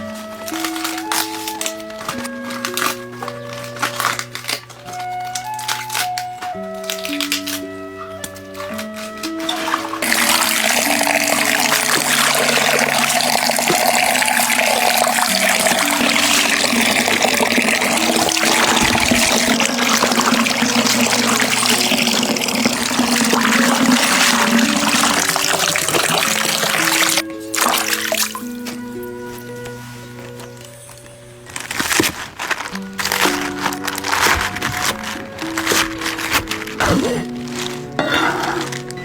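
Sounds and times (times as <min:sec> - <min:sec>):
background music: 0:00.0 - 0:39.0
water running from tap: 0:09.4 - 0:28.5.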